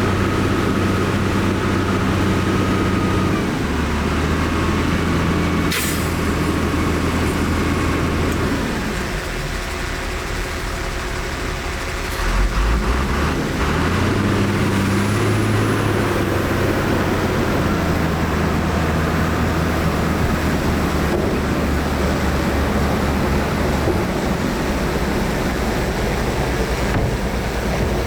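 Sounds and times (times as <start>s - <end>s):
heavy diesel engine under load: 0.0s - 28.0s.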